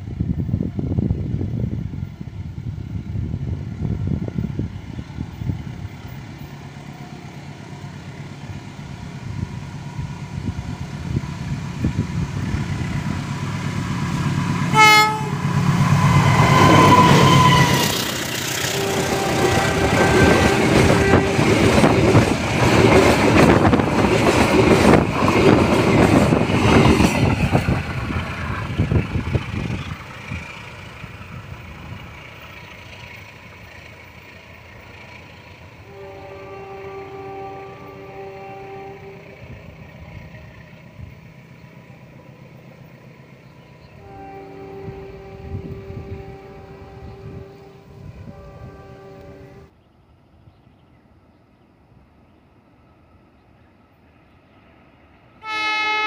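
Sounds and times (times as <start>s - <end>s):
diesel train engine drone: 0.0s - 56.0s
train horn blast: 14.6s - 22.3s, 35.8s - 39.9s, 43.8s - 49.7s, 55.4s - 56.0s.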